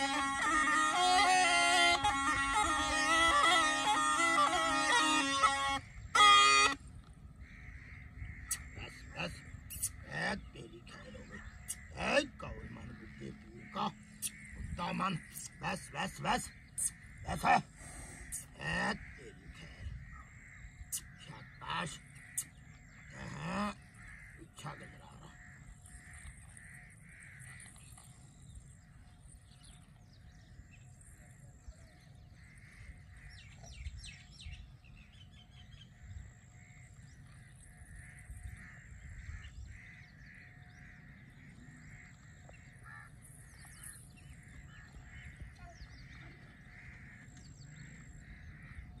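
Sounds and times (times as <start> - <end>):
faint repeating bird call: 0.0 - 49.0
bird chirps: 7.9 - 49.0.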